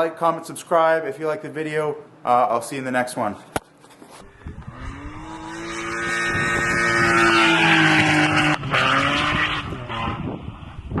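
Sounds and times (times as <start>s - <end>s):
car engine revving high: 4.5s - 10.5s.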